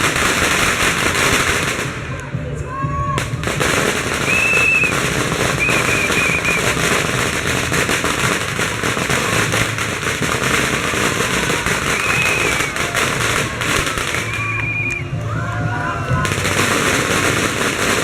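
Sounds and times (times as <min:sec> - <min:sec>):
firecrackers crackling: 0:00.0 - 0:18.0.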